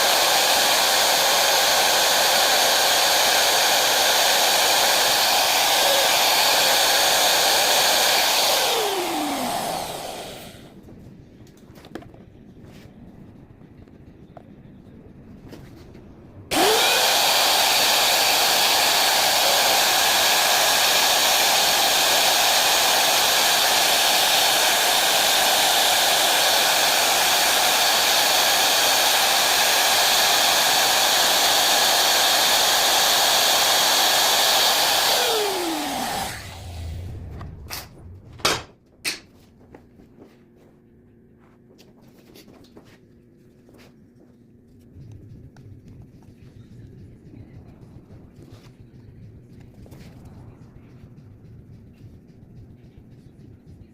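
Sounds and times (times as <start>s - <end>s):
electric router whining: 0.0s - 10.7s, 16.5s - 37.7s.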